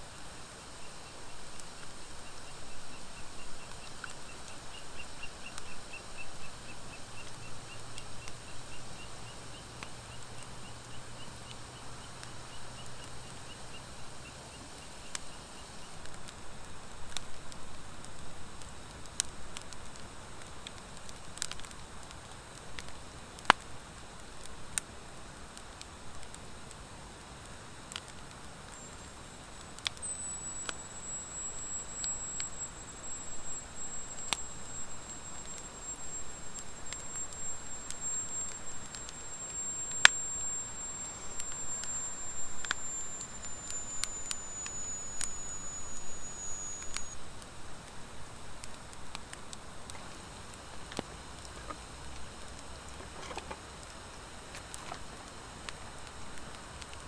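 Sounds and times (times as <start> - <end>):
wood fire crackling and popping: 9.6 - 57.0
thin high whistle: 28.6 - 47.4.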